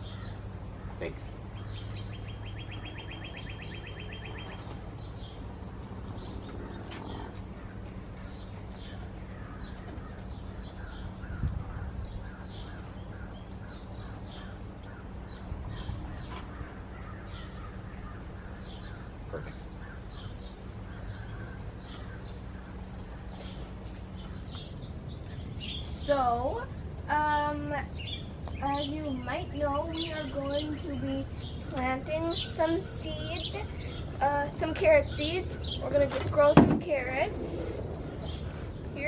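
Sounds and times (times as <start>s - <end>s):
bird trill: 0.0s - 26.1s
birds chirping: 0.0s - 39.0s
steady low hum: 0.0s - 39.0s.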